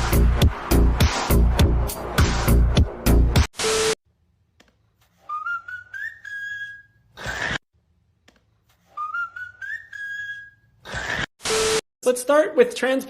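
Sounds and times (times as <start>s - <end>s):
whistled rising tone: 5.3s - 7.0s, 8.9s - 10.6s.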